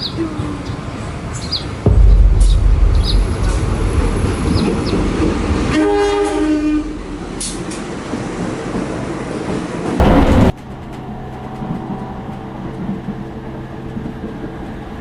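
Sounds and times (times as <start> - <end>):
train rumbling: 0.0 - 15.0
train horn: 5.7 - 7.6.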